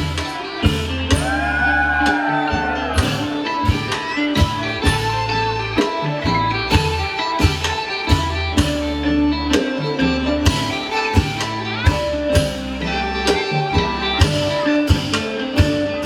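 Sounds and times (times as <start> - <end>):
drum strokes: 0.0 - 16.0
plucked string melody: 0.0 - 16.0
steady bass: 0.0 - 16.0.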